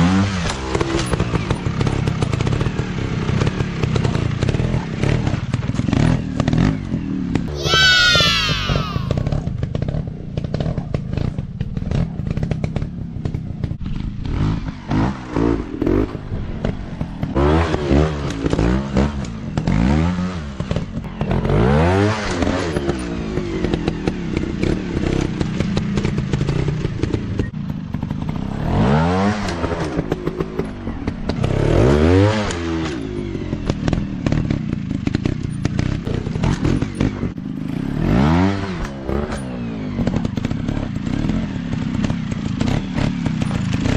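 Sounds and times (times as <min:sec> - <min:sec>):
dirt bike engines revving: 0:04.5 - 0:09.4.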